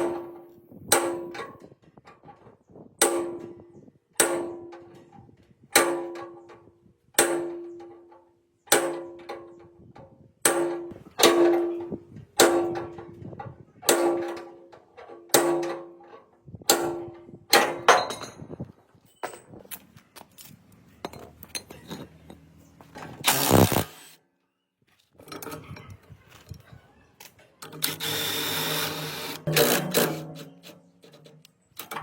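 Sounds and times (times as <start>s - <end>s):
metal parts clanking: 10.5s - 23.9s, 25.0s - 32.0s
power tool running: 23.2s - 24.2s, 27.8s - 30.4s.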